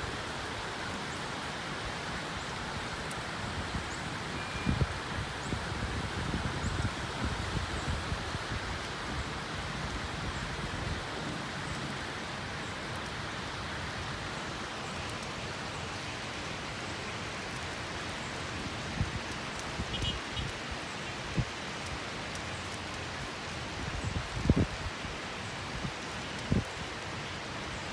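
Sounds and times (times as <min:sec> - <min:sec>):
heavy rain falling: 0:00.0 - 0:27.9.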